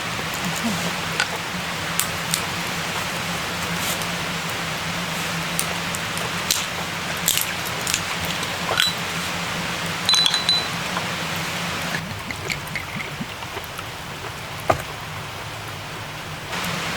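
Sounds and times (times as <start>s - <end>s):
rain hissing: 0.0s - 16.9s
small hard objects clinking: 10.1s - 10.8s.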